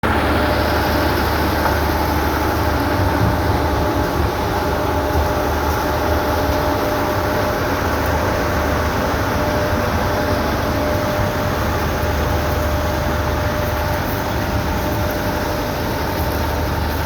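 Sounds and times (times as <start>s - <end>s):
crushing plant diesel engine rumble: 0.0s - 17.0s.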